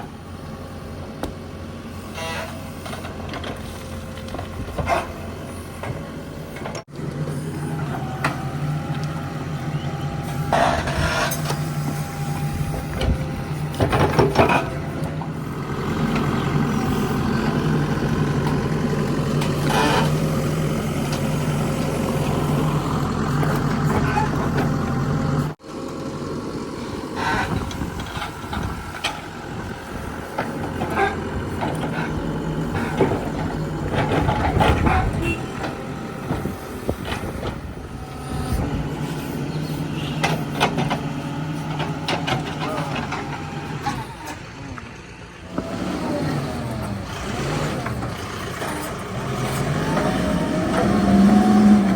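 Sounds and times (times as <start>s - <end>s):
diesel engine revving: 0.0s - 51.9s
knocks and clanks: 12.8s - 15.3s.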